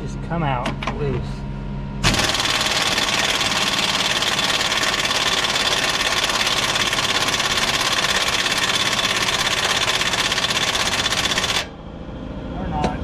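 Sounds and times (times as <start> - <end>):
impact wrench rattling: 2.0 - 11.7.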